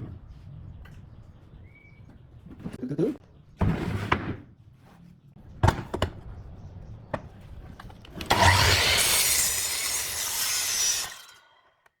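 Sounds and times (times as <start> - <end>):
tool rasping wood: 8.3 - 11.4.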